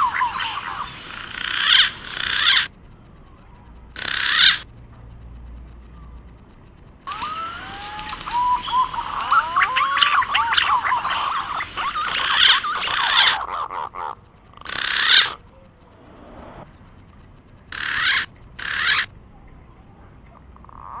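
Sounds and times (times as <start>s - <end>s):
pigeons whistled calls: 7.1s - 13.5s.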